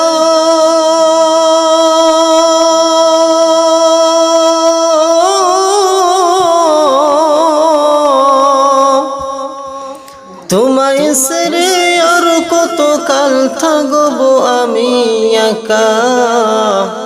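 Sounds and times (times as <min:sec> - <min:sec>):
person singing devotional song: 0:00.0 - 0:17.0.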